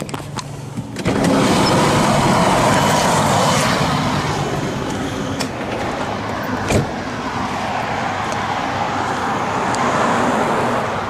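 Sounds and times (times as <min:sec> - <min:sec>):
vehicle engine running: 0:00.0 - 0:07.6
road traffic noise: 0:00.0 - 0:11.0.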